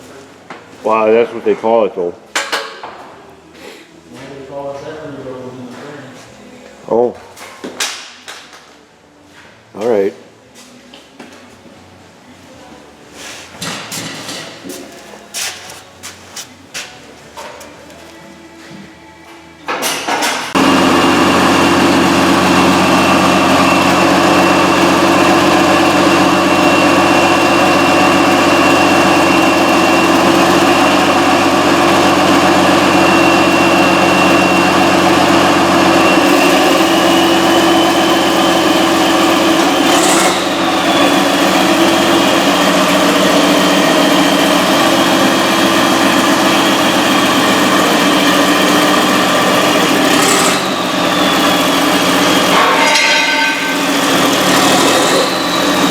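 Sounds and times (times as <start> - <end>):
diesel engine running loudly: 20.5 - 55.9.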